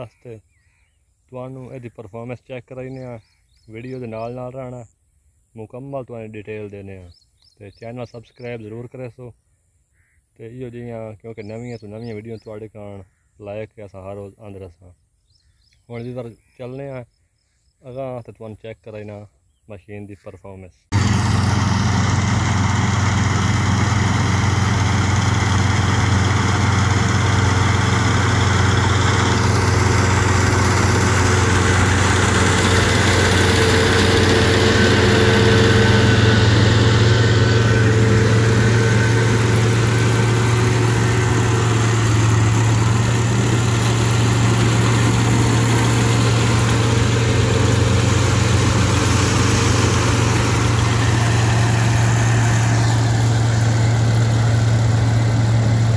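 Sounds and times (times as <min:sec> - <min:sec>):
combine harvester engine under load: 0:20.9 - 0:55.9.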